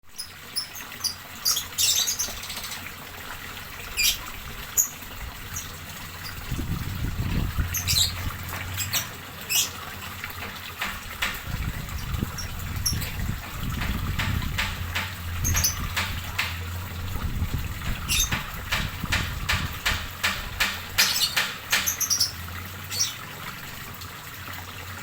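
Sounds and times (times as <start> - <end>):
small birds chirping: 0.1 - 2.8, 7.6 - 9.8, 15.4 - 16.1, 18.1 - 18.5, 20.6 - 23.2.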